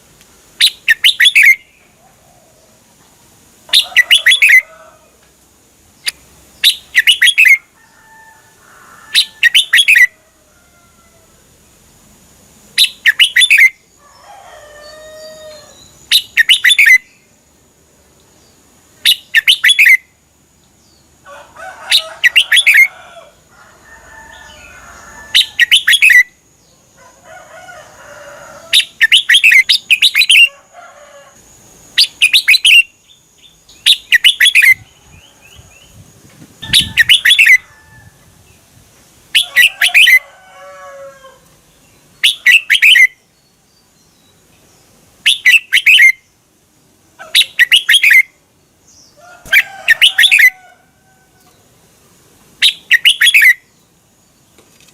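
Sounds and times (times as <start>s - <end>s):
bird chattering calls: 0.6s - 1.8s, 3.7s - 4.8s, 6.0s - 7.6s, 9.1s - 10.1s, 12.8s - 13.8s, 15.6s - 17.2s, 19.0s - 20.0s, 21.9s - 22.9s, 25.3s - 26.3s, 28.7s - 30.5s, 32.0s - 32.9s, 33.8s - 34.9s, 36.6s - 37.7s, 39.3s - 40.2s, 42.2s - 43.2s, 45.2s - 46.2s, 47.2s - 48.3s, 49.4s - 50.6s, 52.6s - 53.6s.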